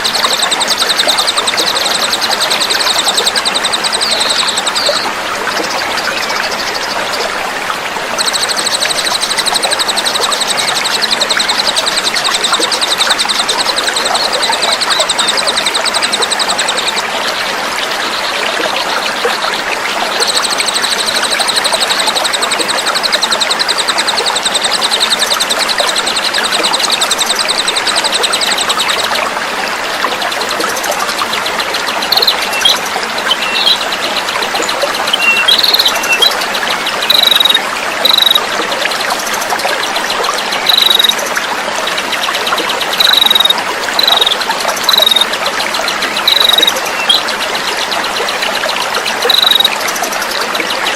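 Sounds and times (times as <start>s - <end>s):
flowing water: 0.0s - 50.9s
small songbird singing: 32.0s - 33.9s, 34.6s - 38.5s, 40.4s - 41.2s, 42.9s - 45.3s, 46.1s - 47.3s, 49.2s - 49.8s.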